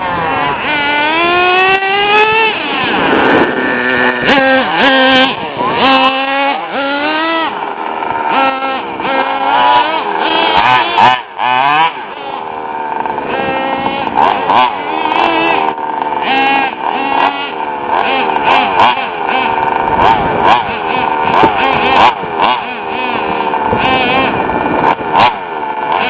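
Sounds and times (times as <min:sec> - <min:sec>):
rc truck engine revving: 0:00.0 - 0:26.0.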